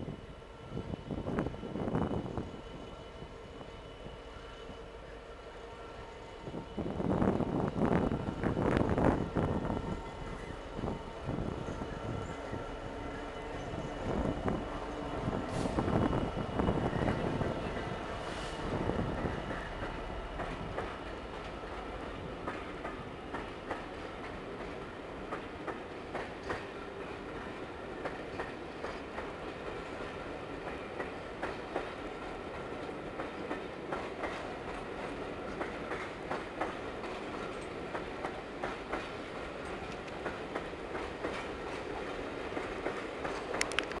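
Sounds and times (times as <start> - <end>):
passenger train rolling past: 0.0 - 44.0
wheels clicking over rail joints: 27.4 - 44.0.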